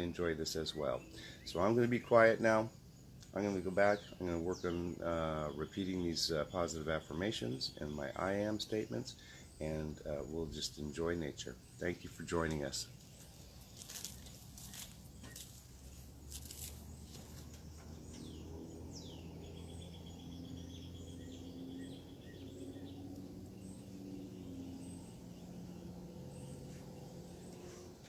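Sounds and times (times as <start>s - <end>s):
birds chirping: 0.0s - 28.0s
steady low hum: 7.8s - 28.0s
bird trilling: 13.0s - 26.6s.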